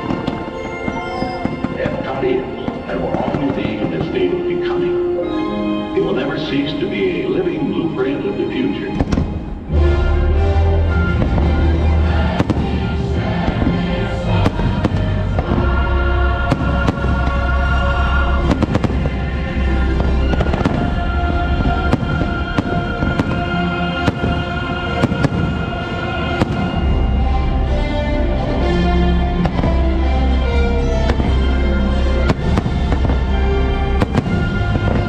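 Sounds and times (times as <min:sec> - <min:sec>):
fireworks cracking and booming: 0:00.0 - 0:04.8, 0:08.9 - 0:09.7, 0:10.9 - 0:27.2, 0:29.4 - 0:35.0
soundtrack music playing loudly: 0:00.0 - 0:35.0.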